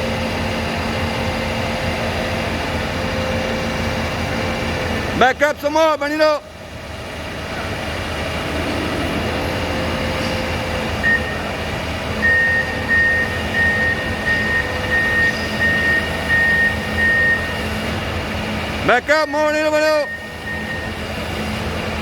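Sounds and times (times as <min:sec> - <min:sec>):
excavator diesel engine running: 0:00.0 - 0:22.0
reversing alarm beeps: 0:08.1 - 0:21.7.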